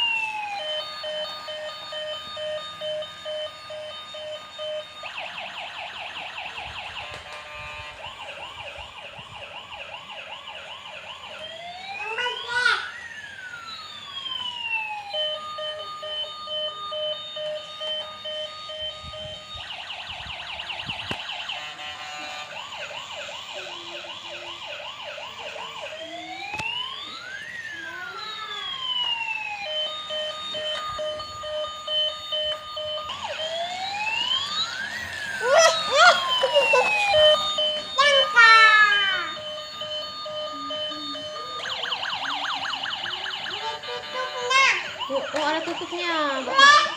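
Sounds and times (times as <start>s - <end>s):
ambulance siren: 0.0s - 46.9s.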